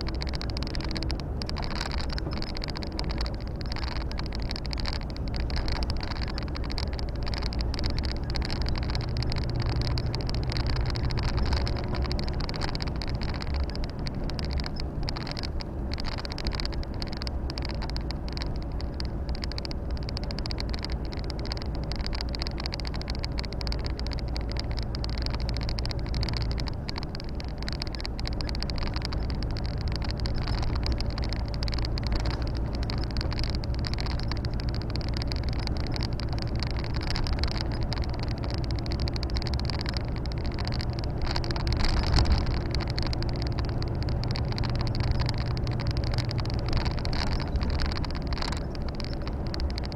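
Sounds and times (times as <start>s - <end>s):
road and wind noise hiss: 0.0s - 49.9s.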